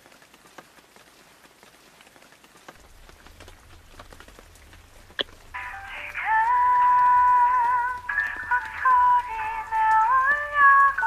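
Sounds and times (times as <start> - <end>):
light rain patter: 0.0 - 11.0
low hum: 2.8 - 11.0.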